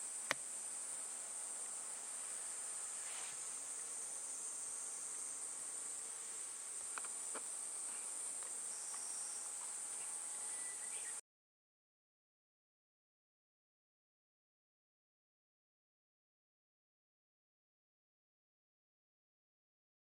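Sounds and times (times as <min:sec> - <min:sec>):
insects trilling: 0:00.0 - 0:11.2
faint clicks: 0:06.9 - 0:10.1.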